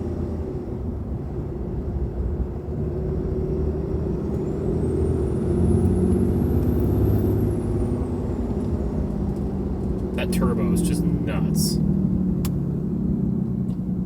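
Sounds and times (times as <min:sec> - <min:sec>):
diesel engine under throttle: 0:00.0 - 0:14.0.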